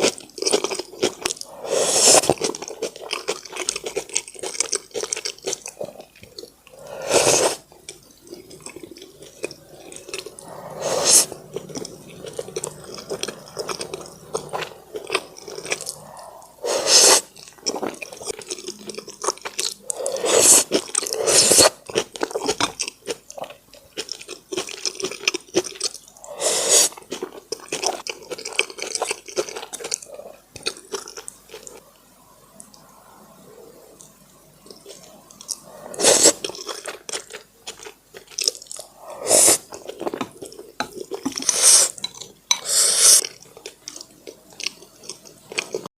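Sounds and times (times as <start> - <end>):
wet chewing mouth clicks: 0.0 - 31.8.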